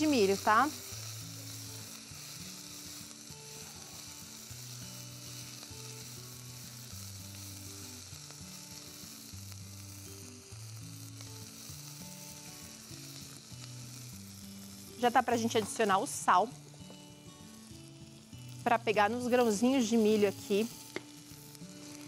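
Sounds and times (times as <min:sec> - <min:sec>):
vegetables sizzling in a saucepan: 0:00.0 - 0:22.0.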